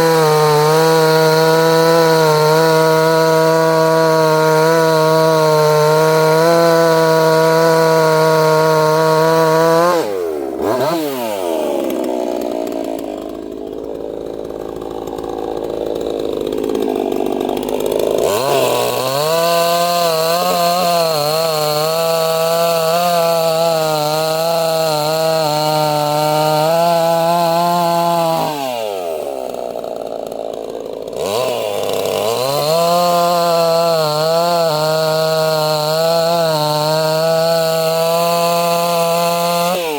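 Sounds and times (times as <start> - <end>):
chainsaw cutting wood: 0.0 - 39.9
chainsaw idling: 0.0 - 39.9.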